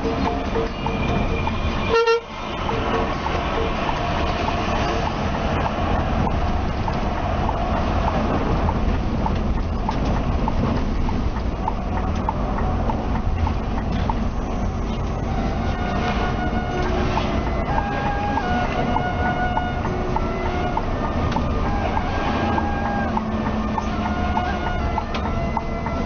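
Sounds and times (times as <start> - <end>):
coach engine and road rumble: 0.0 - 26.0
short horn toot: 1.8 - 2.3
light regular ticking: 2.6 - 15.1.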